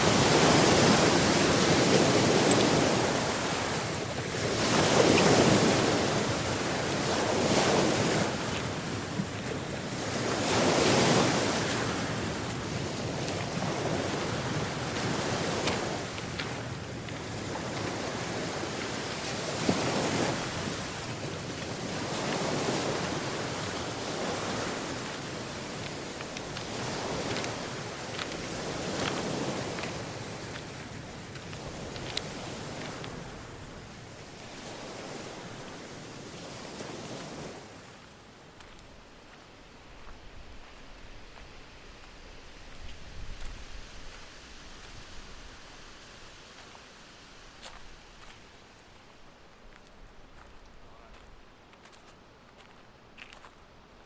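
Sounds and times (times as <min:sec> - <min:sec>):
wind buffeting microphone: 0:00.0 - 0:46.7
ocean waves breaking: 0:00.0 - 0:53.5.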